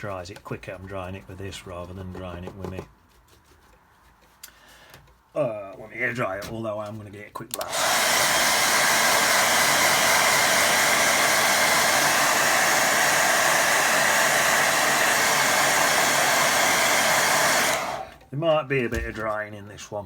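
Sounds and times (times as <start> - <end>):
hair dryer blowing: 7.6 - 18.2.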